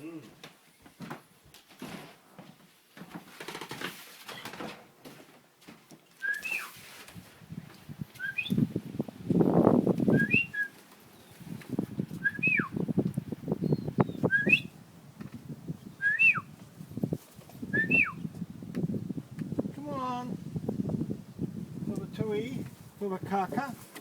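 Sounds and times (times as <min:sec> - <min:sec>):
rustling and clattering: 0:00.4 - 0:12.3, 0:16.6 - 0:17.8, 0:23.5 - 0:24.0
short rising and falling whistle: 0:06.2 - 0:06.8, 0:08.2 - 0:08.6, 0:10.1 - 0:10.7, 0:12.2 - 0:12.7, 0:14.3 - 0:14.7, 0:16.0 - 0:16.4, 0:17.8 - 0:18.2.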